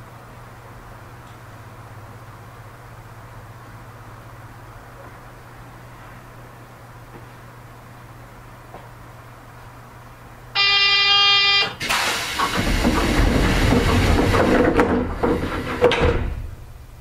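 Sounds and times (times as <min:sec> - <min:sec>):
buzzer: 0:10.6 - 0:11.8
train rushing and rattling: 0:11.8 - 0:16.6.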